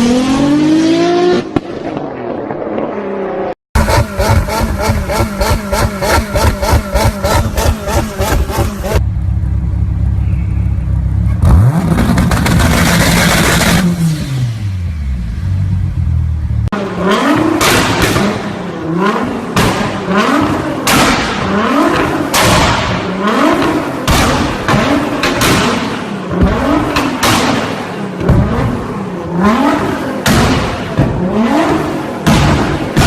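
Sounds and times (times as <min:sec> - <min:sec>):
car engine revving: 0:00.0 - 0:02.5, 0:03.7 - 0:09.0, 0:11.4 - 0:33.0
exhaust pops and bangs: 0:19.6 - 0:28.9, 0:30.2 - 0:31.3, 0:32.2 - 0:33.0.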